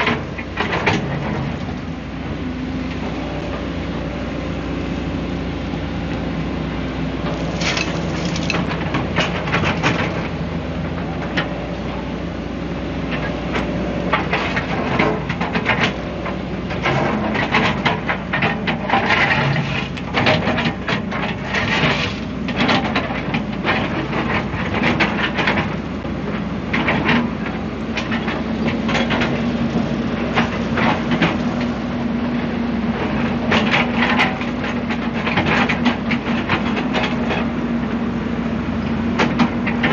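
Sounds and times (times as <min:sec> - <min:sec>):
excavator diesel engine under load: 0:00.0 - 0:39.9
hydraulics working: 0:00.0 - 0:39.9
bucket digging and scraping soil: 0:07.3 - 0:09.8, 0:21.3 - 0:22.4.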